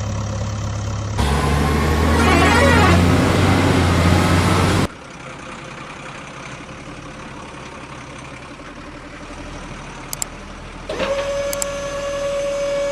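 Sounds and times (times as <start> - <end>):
small clicks: 10.1 - 10.3, 11.0 - 11.8
high-pitched electric motor whine: 10.9 - 12.9
toy vehicles engine hum: 10.9 - 12.9.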